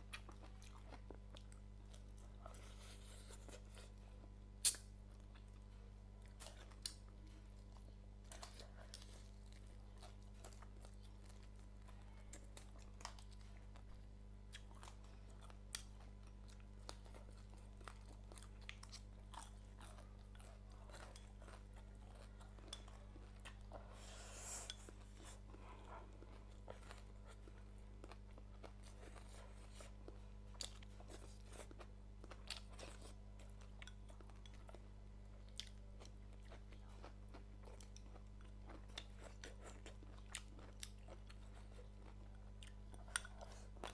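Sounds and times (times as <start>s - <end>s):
person chewing and crunching: 0.0s - 43.9s
steady low hum: 0.0s - 43.9s.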